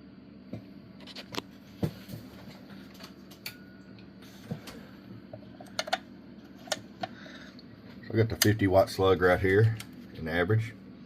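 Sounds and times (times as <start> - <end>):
steady low hum: 0.0 - 11.0
clicks and knocks of handled slugs: 5.6 - 6.0.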